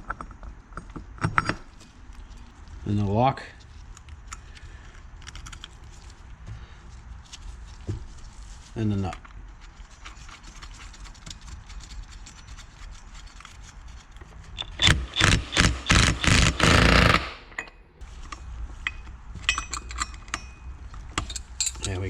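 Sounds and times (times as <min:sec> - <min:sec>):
impact wrench bursts: 0:14.6 - 0:17.5.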